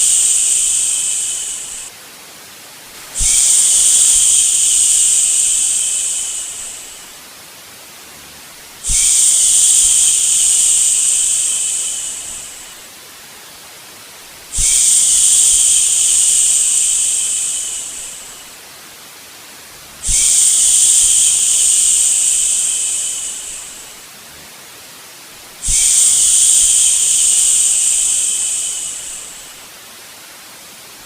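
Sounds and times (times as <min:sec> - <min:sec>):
white noise hiss: 0:00.0 - 0:31.0
person shushing: 0:03.2 - 0:07.1.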